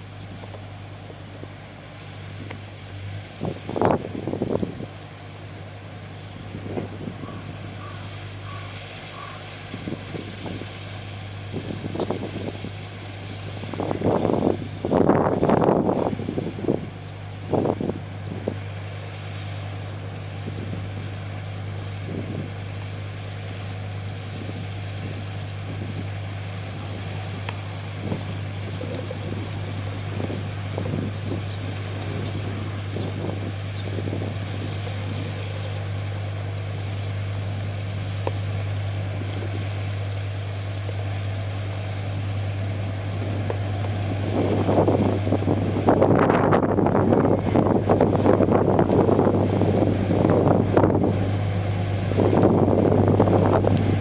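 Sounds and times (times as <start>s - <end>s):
ship diesel engines humming: 0.0s - 54.0s
wind buffeting microphone: 2.4s - 5.0s, 6.3s - 8.7s, 9.7s - 18.8s, 20.3s - 22.6s, 24.2s - 36.1s, 42.0s - 54.0s.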